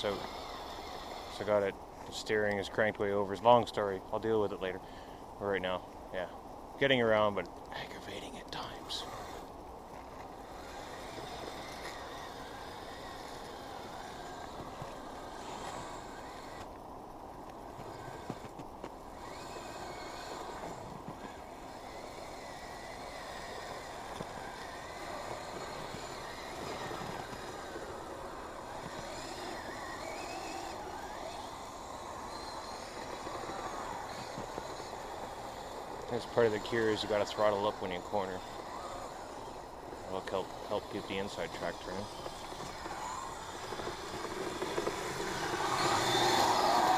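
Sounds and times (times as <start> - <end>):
electric motors whining: 0.0 - 46.9
tracks churning through snow: 17.6 - 46.9.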